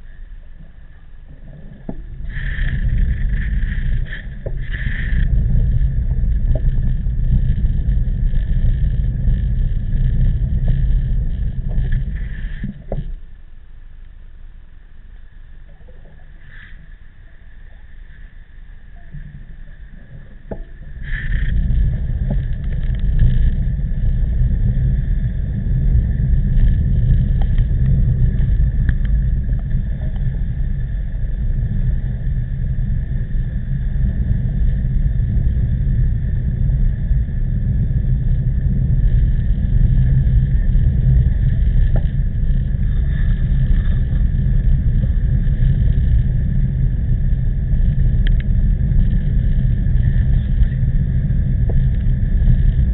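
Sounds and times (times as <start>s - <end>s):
wind buffeting microphone: 0.9s - 13.2s, 19.0s - 52.9s.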